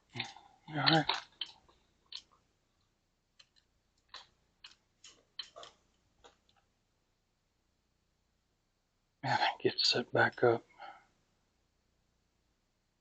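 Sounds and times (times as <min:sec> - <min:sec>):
small objects clicking and tapping: 0:00.1 - 0:02.4, 0:03.4 - 0:06.7.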